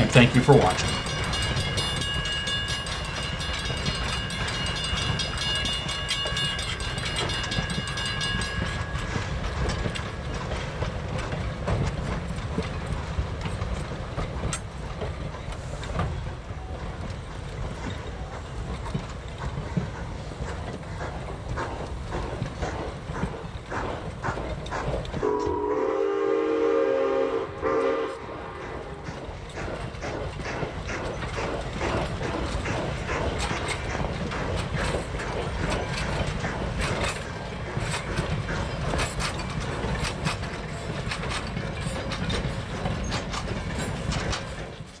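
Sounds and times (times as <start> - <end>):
wheels clicking over rail joints: 0.0 - 25.4, 27.5 - 45.0
train rumbling past: 0.0 - 45.0
locomotive horn blast: 25.2 - 28.6.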